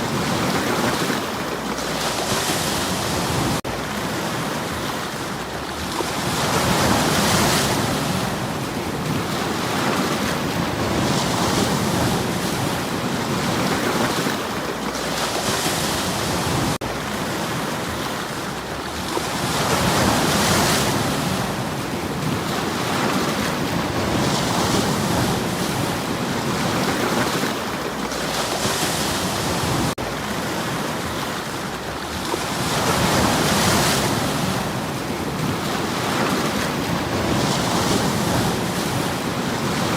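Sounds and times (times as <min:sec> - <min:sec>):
waves washing over stones: 0:00.0 - 0:39.9.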